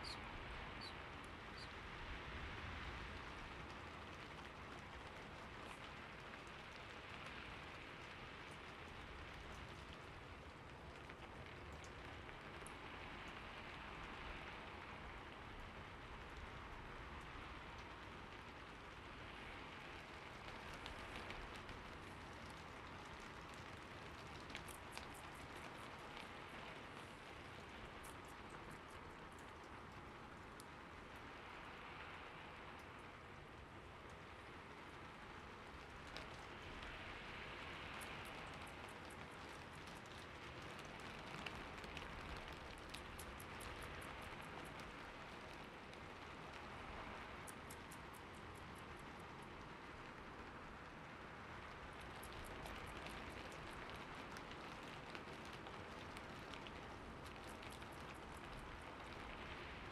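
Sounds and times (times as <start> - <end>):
rain-like hiss: 0.0 - 59.9
light ticks: 20.0 - 31.8, 32.6 - 33.3, 34.0 - 59.8.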